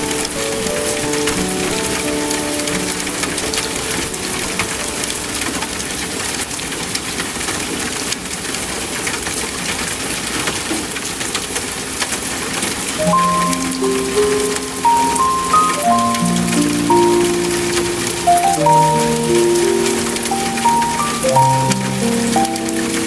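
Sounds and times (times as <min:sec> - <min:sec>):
steady rain: 0:00.0 - 0:23.0
soft held musical notes: 0:13.0 - 0:23.0.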